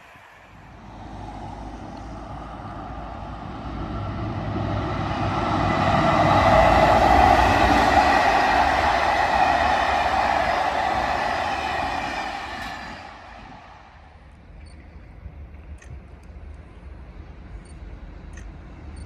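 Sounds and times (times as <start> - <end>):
wheels ringing on rail: 0.0 - 14.1
train rumble: 0.0 - 19.0.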